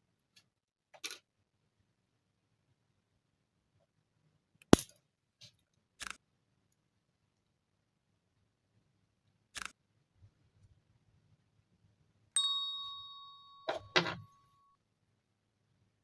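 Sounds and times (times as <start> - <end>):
small metal object ringing: 12.4 - 14.7.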